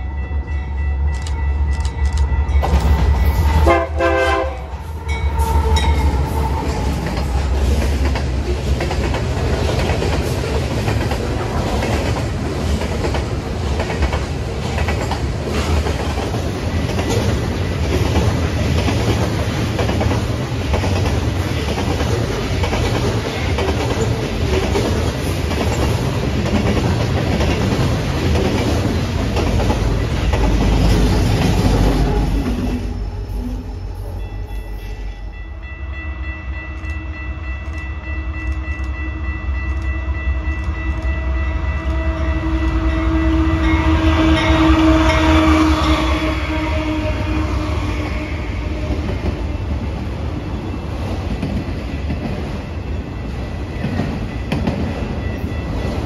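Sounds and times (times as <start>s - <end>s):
train wheels rumbling on rail: 0.0s - 56.0s
multi-note train horn chord: 3.5s - 5.8s, 35.2s - 49.6s.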